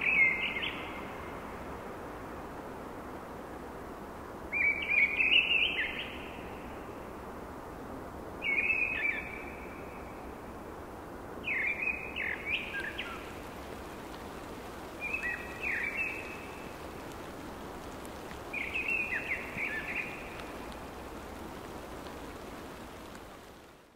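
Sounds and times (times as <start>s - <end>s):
songbird singing: 0.0s - 1.5s, 4.5s - 7.1s, 8.4s - 10.5s, 11.4s - 23.7s.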